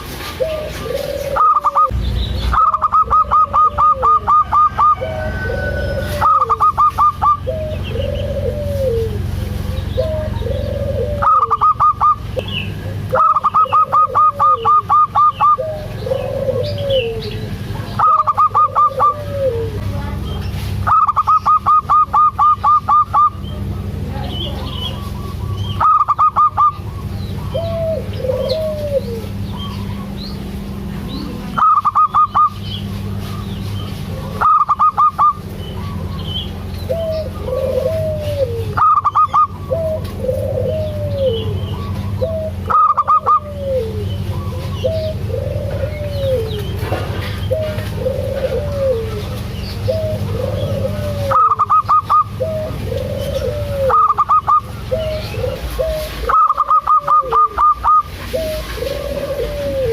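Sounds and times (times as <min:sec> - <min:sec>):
doves cooing: 0:00.0 - 0:59.9
bursts of rapid high bird notes: 0:01.4 - 0:05.0, 0:31.6 - 0:32.9, 0:34.4 - 0:36.4.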